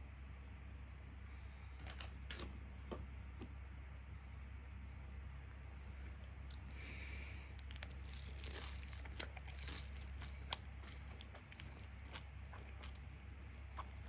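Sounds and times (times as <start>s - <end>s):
crunchy fried food chewing: 6.3s - 14.0s.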